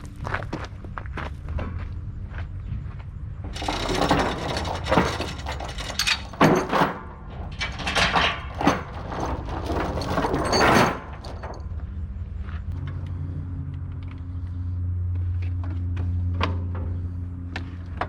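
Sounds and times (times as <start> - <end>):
metal rattling and clanking: 3.5 - 12.0
low engine hum: 11.4 - 18.0.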